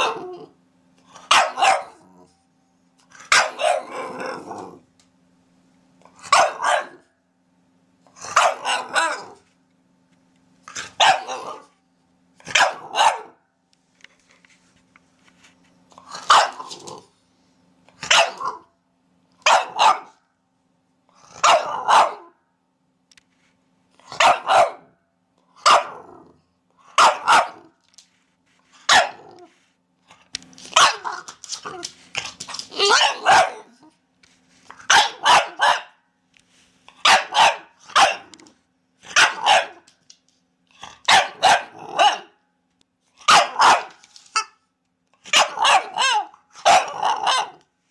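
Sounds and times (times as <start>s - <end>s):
dog barking: 0.0s - 0.4s, 1.3s - 2.1s, 3.3s - 4.0s, 6.2s - 7.1s, 8.3s - 9.4s, 11.0s - 11.7s, 12.5s - 13.4s, 16.3s - 16.7s, 18.0s - 18.7s, 19.4s - 20.2s, 21.4s - 22.4s, 24.1s - 25.0s, 25.6s - 26.0s, 27.0s - 27.7s, 28.9s - 29.3s, 30.8s - 31.2s, 32.8s - 33.8s, 34.8s - 36.0s, 37.0s - 38.4s, 39.1s - 39.9s, 41.1s - 42.4s, 43.3s - 44.0s, 45.3s - 47.6s.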